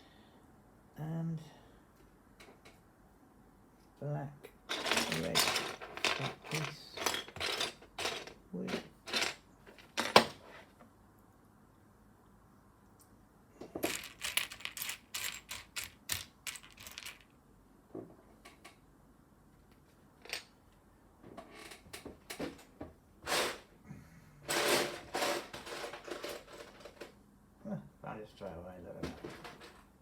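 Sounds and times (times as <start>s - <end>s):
plastic bricks clicking and clattering: 4.7s - 10.4s, 13.8s - 17.3s.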